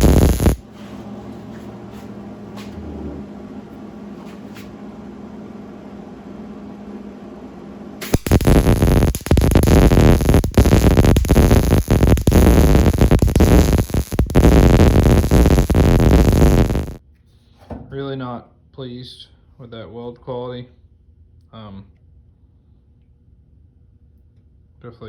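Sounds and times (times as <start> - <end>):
arc welder crackling: 0.0 - 0.6, 8.0 - 17.0.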